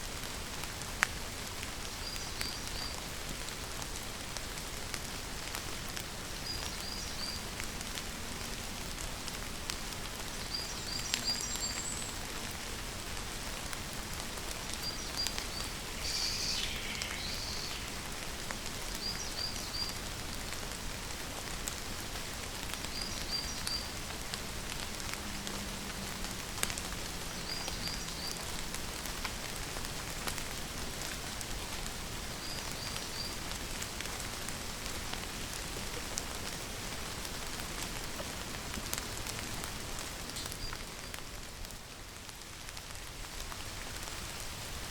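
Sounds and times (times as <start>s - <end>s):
steady rain hissing: 0.0s - 44.9s
raindrops ticking: 3.9s - 31.6s
short high bird chirp: 15.6s - 18.0s.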